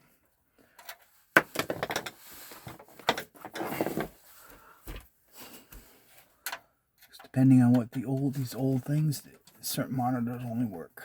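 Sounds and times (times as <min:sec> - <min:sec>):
hard parts clattering: 0:00.8 - 0:04.2.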